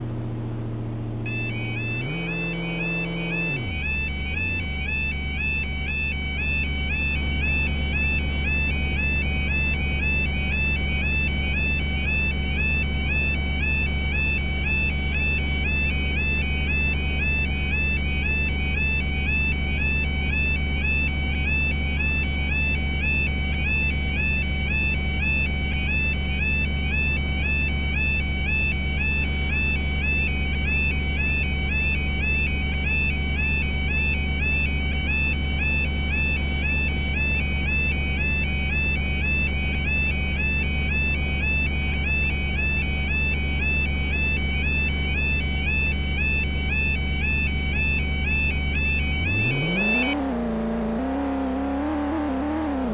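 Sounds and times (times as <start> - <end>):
steady low hum: 0.0 - 17.0
level crossing alarm warbling: 1.3 - 23.2, 29.6 - 52.9.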